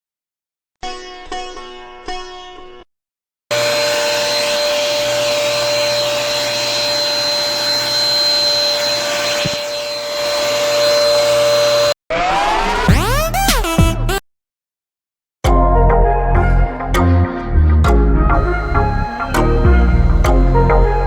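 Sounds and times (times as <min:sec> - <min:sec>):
vacuum cleaner running: 0:03.5 - 0:12.0, 0:18.4 - 0:21.0.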